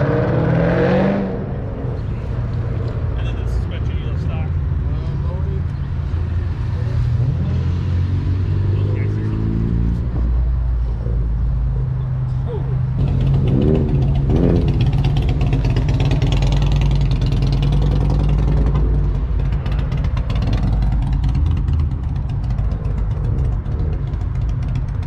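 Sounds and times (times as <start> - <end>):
car engine running: 10.8 - 25.0.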